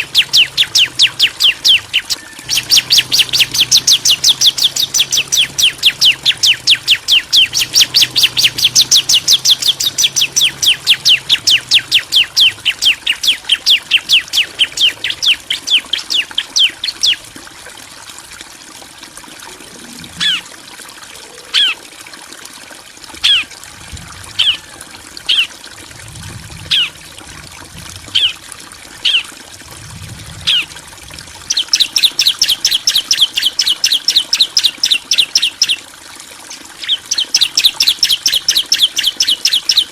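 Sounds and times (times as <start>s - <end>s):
birds chirping sharply: 0.0s - 17.2s, 26.3s - 27.1s, 28.1s - 28.4s, 30.3s - 30.8s, 31.4s - 35.8s, 36.5s - 39.9s.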